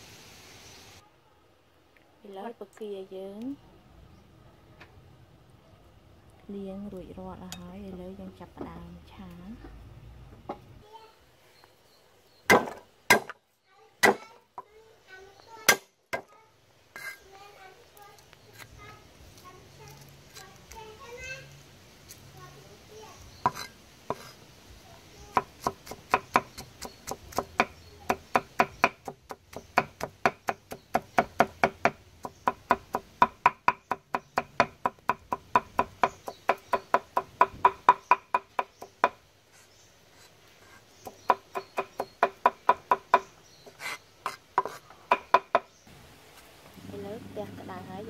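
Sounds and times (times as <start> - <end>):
cleaver chopping on wooden block: 12.5 - 13.4, 14.0 - 14.2, 25.3 - 39.2, 41.0 - 45.7.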